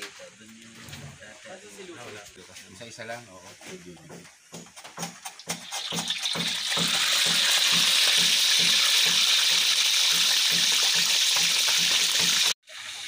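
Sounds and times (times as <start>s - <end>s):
fish sizzling in hot oil: 5.2s - 13.0s.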